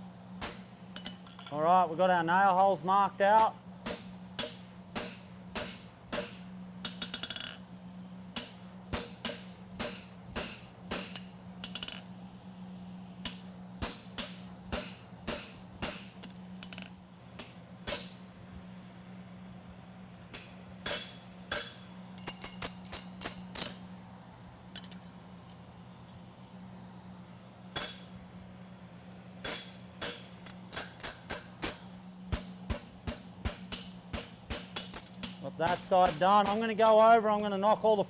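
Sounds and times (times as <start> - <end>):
steady low hum: 0.0 - 38.0
hammer striking metal punch: 3.4 - 7.5, 8.4 - 11.9, 13.3 - 16.3, 20.3 - 23.7, 27.8 - 28.1, 29.4 - 37.6.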